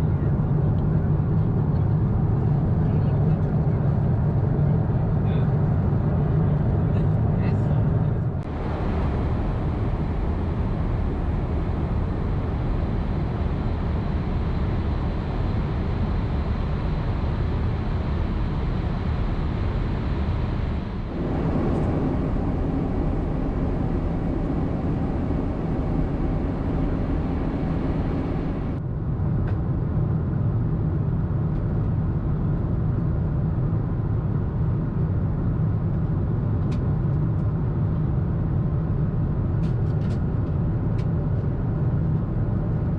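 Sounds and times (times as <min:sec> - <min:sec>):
airliner cabin rumble: 0:00.0 - 0:29.7.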